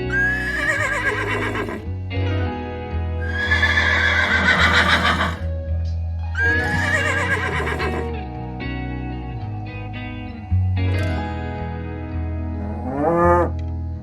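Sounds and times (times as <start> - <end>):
horse whinnying: 0.0 - 1.9, 3.2 - 5.5, 6.4 - 8.1
background music: 0.0 - 14.0.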